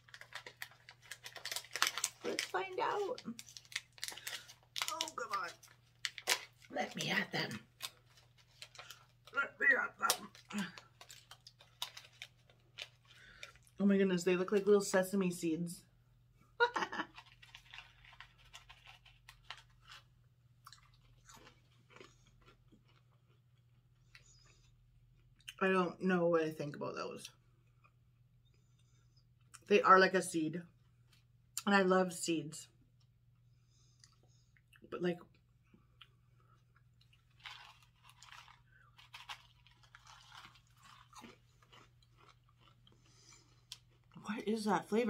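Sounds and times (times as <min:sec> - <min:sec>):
person chewing crisp snack: 0:00.0 - 0:13.8, 0:16.8 - 0:25.5, 0:35.9 - 0:44.2.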